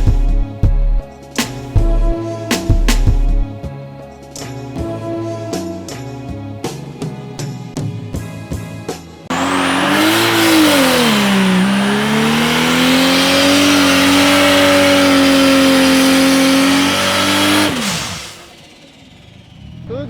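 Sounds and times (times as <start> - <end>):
background music: 0.0 - 9.3
drag car engine revving: 9.3 - 20.0
tire squeal: 9.3 - 20.0.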